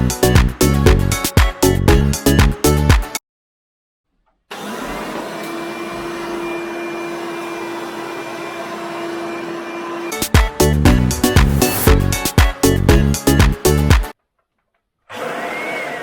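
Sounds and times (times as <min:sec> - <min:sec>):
music: 0:00.0 - 0:03.2, 0:10.1 - 0:14.2
vacuum cleaner running: 0:04.5 - 0:12.2, 0:15.1 - 0:16.0.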